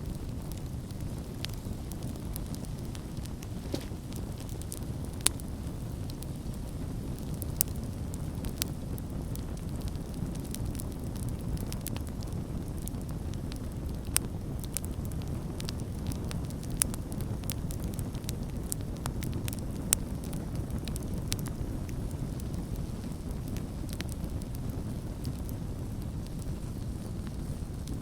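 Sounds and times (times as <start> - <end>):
campfire crackling and popping: 0.0 - 28.0
low rush of fire: 0.0 - 28.0.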